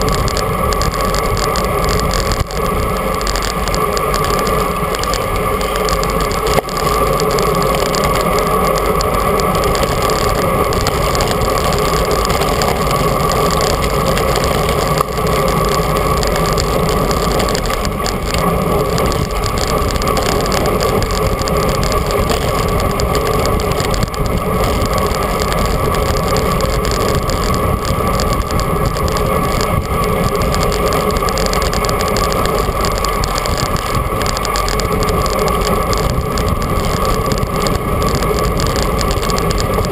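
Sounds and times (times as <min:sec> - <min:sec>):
bicycle tyre noise: 0:00.0 - 0:39.9
wind buffeting microphone: 0:00.0 - 0:39.9.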